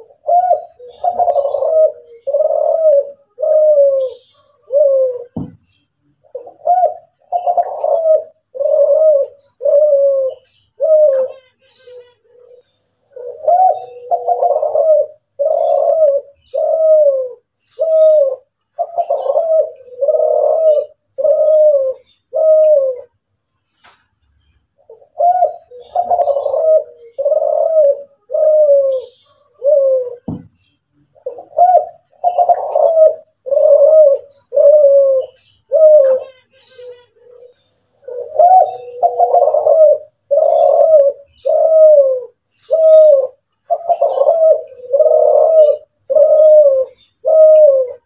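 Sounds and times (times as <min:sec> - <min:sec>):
dove cooing: 0:00.0 - 0:23.2, 0:24.8 - 0:48.0
faint high bird chirps: 0:00.0 - 0:48.0
thump: 0:05.4 - 0:05.6, 0:30.3 - 0:30.5.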